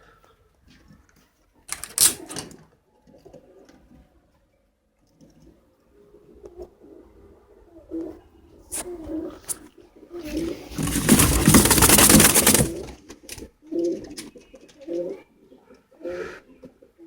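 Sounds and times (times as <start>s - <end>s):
loud clatter: 10.7s - 13.0s.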